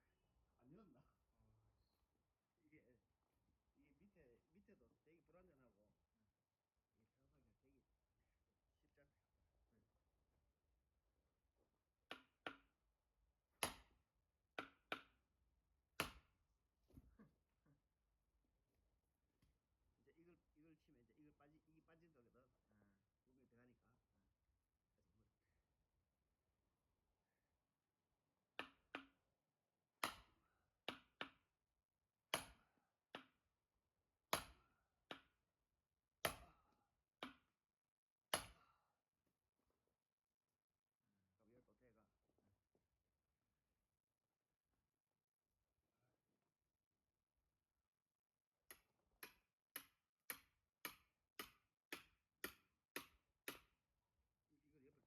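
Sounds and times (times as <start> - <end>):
axe splitting firewood: 13.6 - 14.0, 16.0 - 17.1, 30.0 - 31.4, 32.3 - 32.6, 34.3 - 35.3, 38.3 - 38.7
axe striking firewood: 13.6 - 14.0, 16.0 - 17.1, 30.0 - 31.4, 32.3 - 33.4, 34.3 - 35.3, 36.2 - 36.6, 37.2 - 37.5, 38.3 - 38.7, 48.7 - 53.7.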